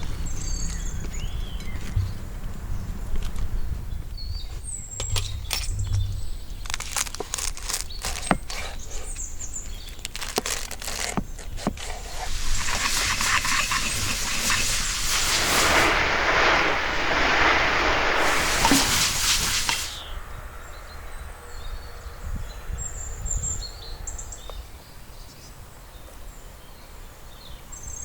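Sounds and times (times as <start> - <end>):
low rumble: 12.3 - 20.3.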